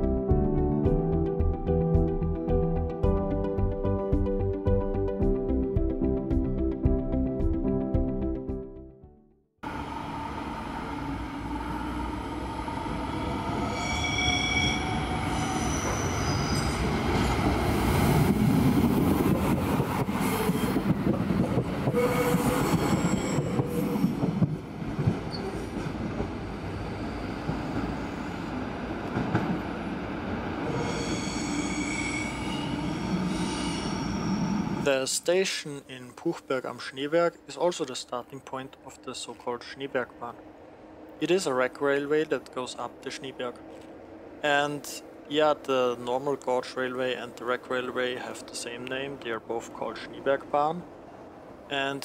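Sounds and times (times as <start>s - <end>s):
diesel train running past: 9.6s - 35.2s, 38.7s - 51.9s
high-pitched wheel squeal: 9.7s - 17.3s, 21.9s - 24.1s, 30.6s - 34.8s.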